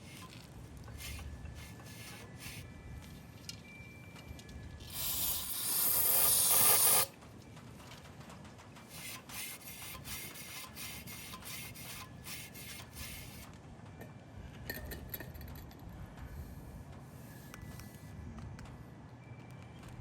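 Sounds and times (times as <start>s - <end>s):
brush scrubbing metal: 0.0s - 2.6s, 4.9s - 7.1s, 8.9s - 13.5s.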